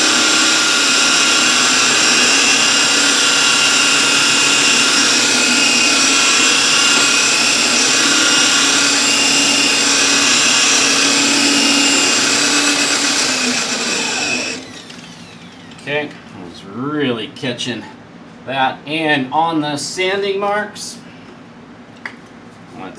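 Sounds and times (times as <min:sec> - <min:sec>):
rotary polisher motor whine: 0:00.0 - 0:15.9.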